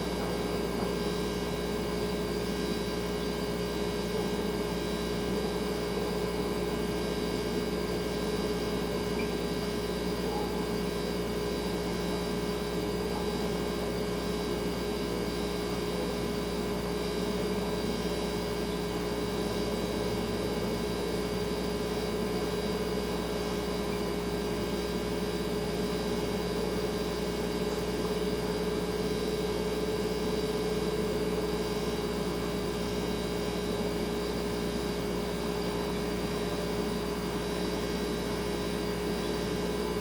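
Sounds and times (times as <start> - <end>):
refrigerator humming: 0.0 - 40.0.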